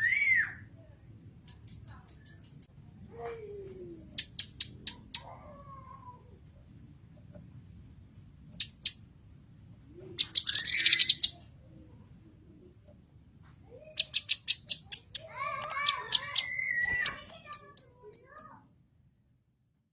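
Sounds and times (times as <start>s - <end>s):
bird singing: 10.1s - 11.4s, 13.9s - 18.5s.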